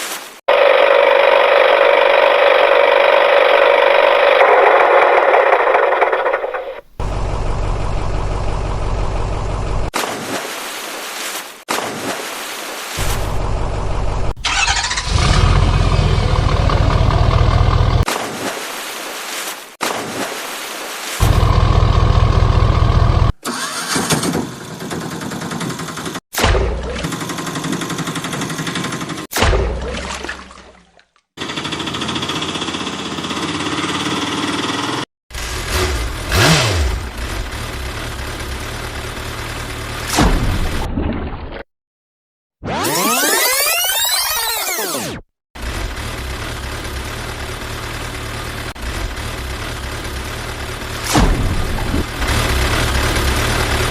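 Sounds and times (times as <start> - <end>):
loud engine running: 0.5 - 9.9, 13.0 - 18.1, 21.2 - 23.4, 31.4 - 40.1, 45.6 - 53.9
vehicle engines running: 1.1 - 10.0, 13.0 - 18.1, 21.2 - 23.4, 31.4 - 40.1, 45.6 - 53.9.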